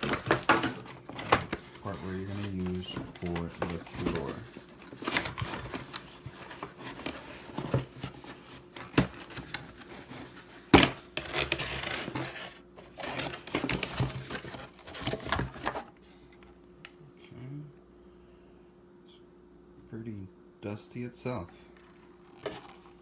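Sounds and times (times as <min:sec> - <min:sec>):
plastic parts clicking and scraping: 0:00.0 - 0:15.9.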